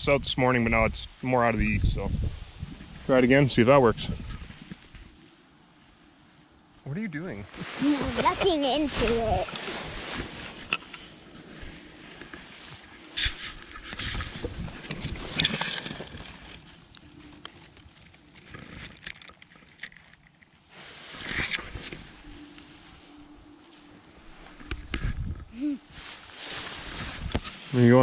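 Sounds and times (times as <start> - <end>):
wind gusting on microphone: 0.0 - 5.2, 14.0 - 15.6, 24.3 - 26.0, 26.8 - 28.0.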